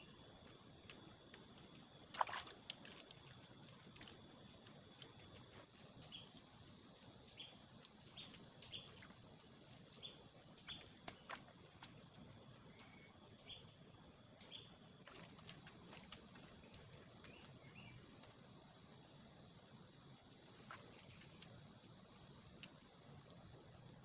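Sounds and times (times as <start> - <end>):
high insect drone: 0.0 - 24.0.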